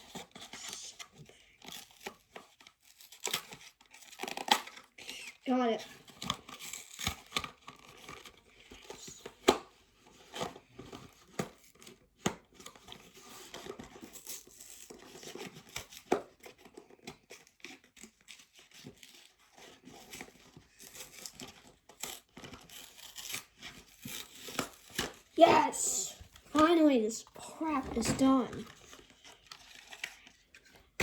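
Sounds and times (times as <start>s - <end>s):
tearing packaging: 1.6s - 8.8s, 12.6s - 25.6s, 27.7s - 30.8s.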